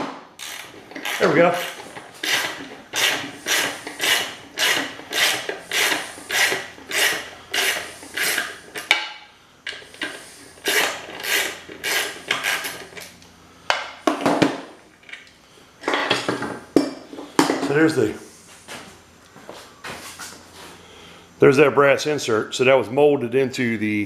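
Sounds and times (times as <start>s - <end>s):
ratchet wrench clicking: 0.4s - 8.9s, 10.0s - 12.9s.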